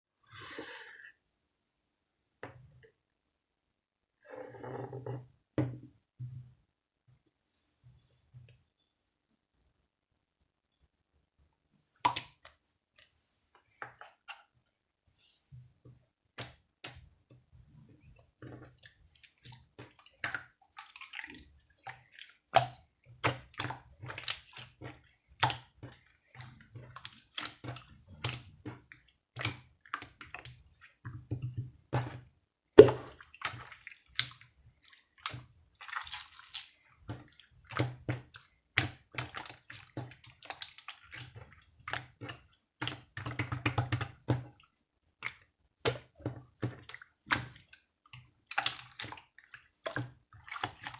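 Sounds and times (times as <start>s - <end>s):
water dripping and sloshing: 18.0s - 50.9s.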